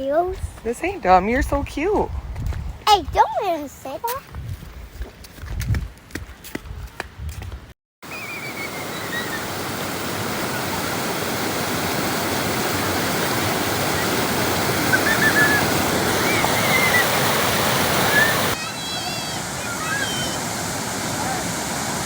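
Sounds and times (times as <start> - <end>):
waterfall rushing: 8.1 - 22.0.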